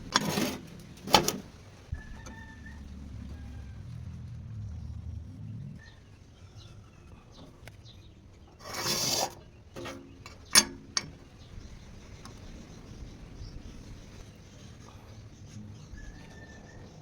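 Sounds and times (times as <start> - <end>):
rasping scrape: 0.0 - 1.5, 8.6 - 10.7.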